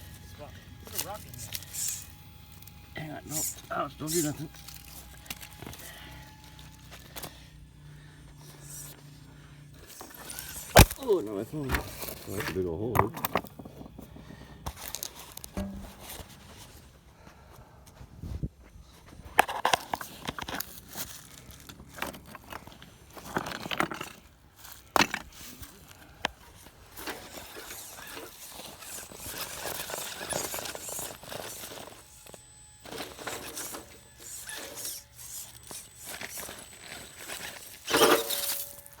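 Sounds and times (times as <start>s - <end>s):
crunching scraping and crackling: 0.0s - 17.0s, 19.1s - 39.0s
sharp knocks: 15.6s - 16.3s.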